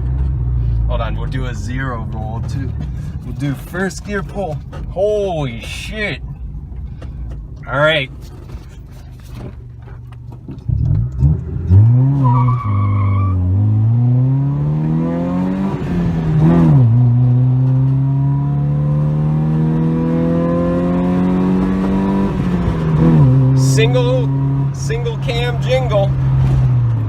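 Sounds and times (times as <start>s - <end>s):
car engine accelerating hard: 0.0s - 5.6s, 6.5s - 27.0s.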